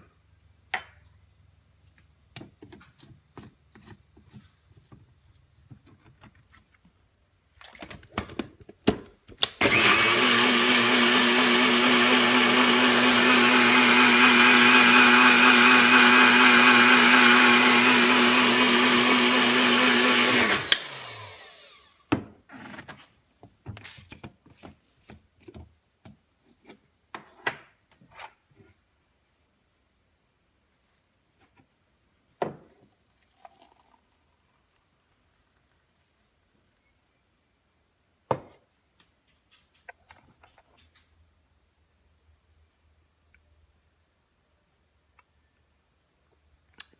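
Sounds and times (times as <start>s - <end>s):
electric blender running: 9.6s - 22.0s.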